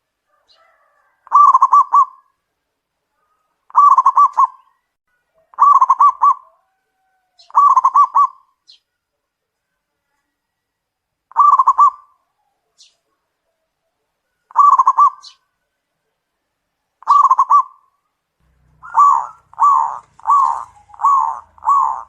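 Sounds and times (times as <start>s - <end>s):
dove cooing: 0.3s - 2.3s, 3.7s - 4.7s, 5.4s - 8.5s, 11.3s - 12.6s, 14.5s - 15.4s, 17.0s - 17.8s, 18.5s - 22.0s.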